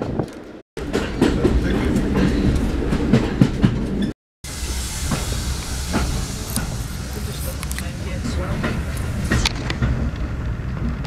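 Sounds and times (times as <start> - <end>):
wheels clicking over rail joints: 0.0 - 4.1, 5.1 - 11.0
railway carriage rumble: 0.0 - 11.0
steady hiss: 4.5 - 9.4.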